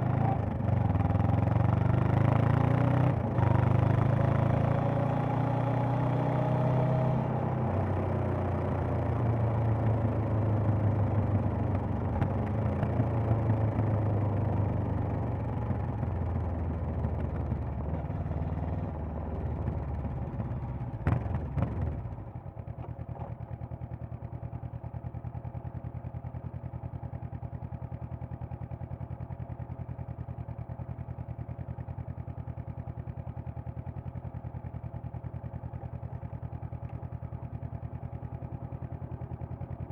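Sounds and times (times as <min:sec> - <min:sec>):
motorcycle engine running: 0:00.0 - 0:39.9
motorcycle engine idling: 0:08.8 - 0:39.9.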